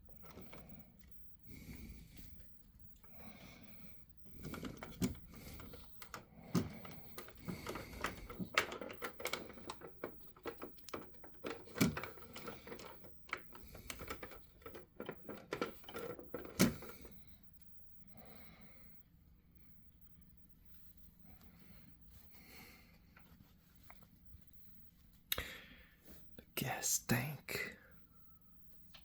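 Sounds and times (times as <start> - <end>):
clicks and knocks of toy truck: 4.3 - 17.2.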